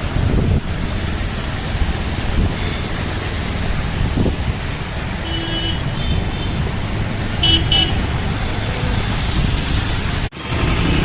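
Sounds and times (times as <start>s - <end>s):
road traffic rumble: 0.0s - 11.0s
vehicle horn toot: 5.2s - 6.6s, 7.4s - 8.0s.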